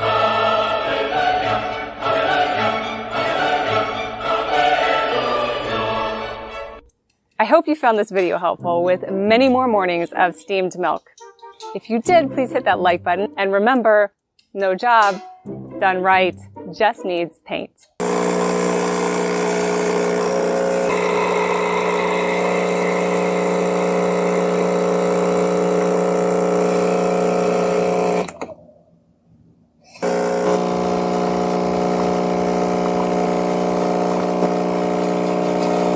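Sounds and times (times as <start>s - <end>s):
machine motor humming: 18.0s - 28.5s, 30.0s - 35.9s.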